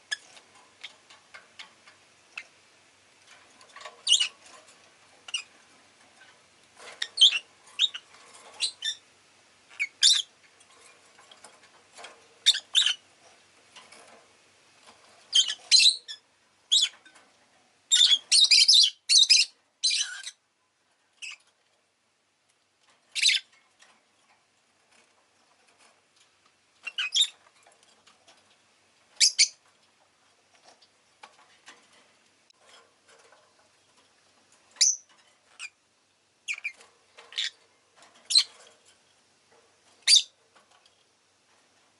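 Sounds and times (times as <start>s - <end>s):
lovebird chirping: 4.0s - 4.4s, 7.0s - 9.0s, 9.7s - 10.3s, 12.4s - 13.0s, 15.3s - 17.0s, 17.9s - 20.4s, 23.1s - 23.5s, 26.8s - 27.4s, 29.2s - 29.6s, 34.8s - 35.8s, 36.4s - 37.6s, 38.3s - 38.5s, 40.0s - 40.3s.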